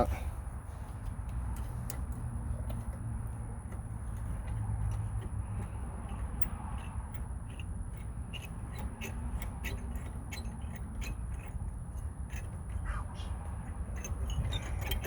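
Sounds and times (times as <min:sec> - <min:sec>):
light metal clicks and knocks: 0:01.0 - 0:15.0.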